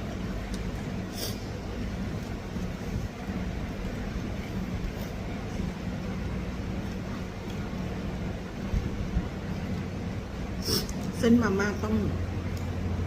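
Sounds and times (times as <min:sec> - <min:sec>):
faint hum: 0:00.0 - 0:13.0
low background rumble: 0:00.0 - 0:13.0.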